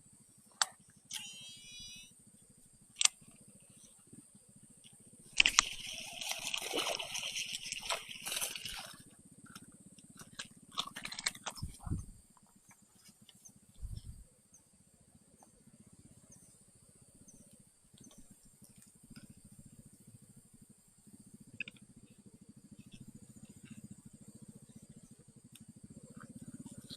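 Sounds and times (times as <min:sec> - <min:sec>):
quiet outdoor background: 0:00.0 - 0:26.9
water splashing and sloshing: 0:05.3 - 0:09.1.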